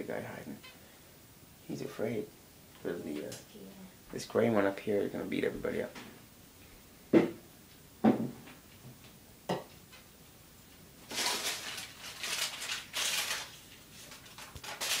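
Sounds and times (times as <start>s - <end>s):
sharp knocks in bird cage: 8.0s - 8.4s
birds rustling and wing-flapping: 11.1s - 15.0s.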